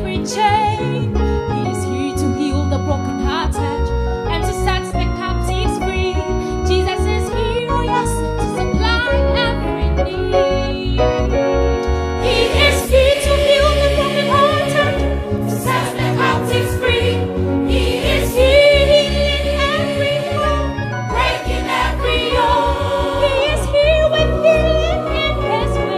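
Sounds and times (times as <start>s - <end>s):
keyboard and bass accompaniment: 0.0s - 25.9s
gospel choir singing: 12.1s - 25.9s.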